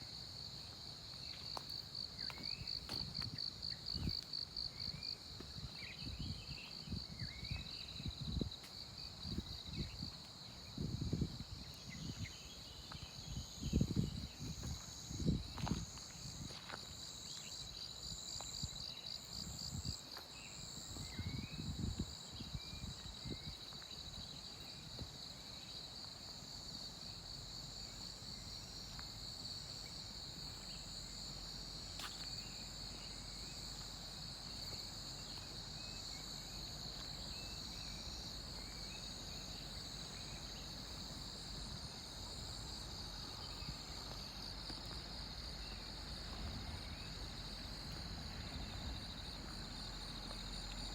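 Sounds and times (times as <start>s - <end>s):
insects trilling: 0.0s - 50.9s
footsteps thumping: 2.3s - 3.4s.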